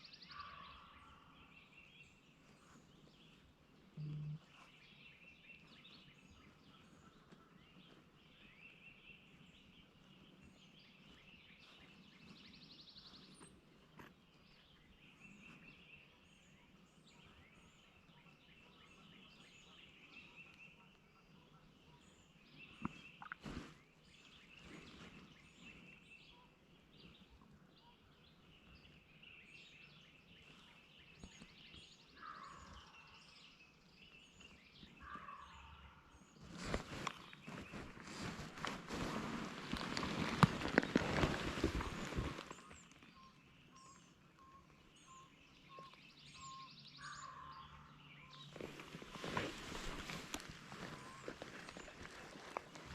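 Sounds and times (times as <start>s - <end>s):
songbirds chirping: 0.0s - 52.9s
distant turkey gobbles: 20.2s - 23.8s, 35.0s - 52.9s.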